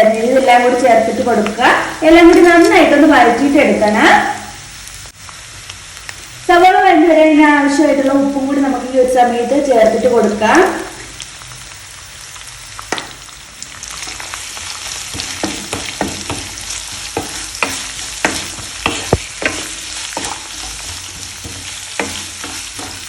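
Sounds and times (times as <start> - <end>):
onions sizzling in oil: 0.0 - 23.0
spatula scraping a pan: 13.9 - 23.0.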